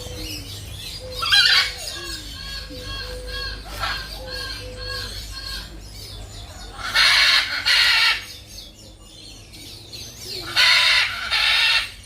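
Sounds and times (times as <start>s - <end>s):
peafowl honking calls: 0.0s - 5.8s, 6.7s - 8.4s, 10.4s - 12.0s.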